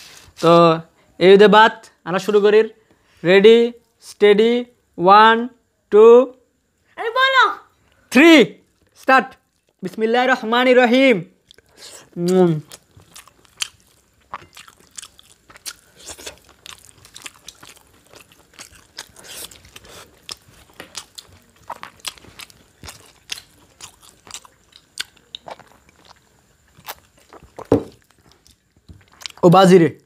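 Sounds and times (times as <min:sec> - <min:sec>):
people chewing with mouth clicks: 0:08.7 - 0:09.8, 0:11.4 - 0:29.4.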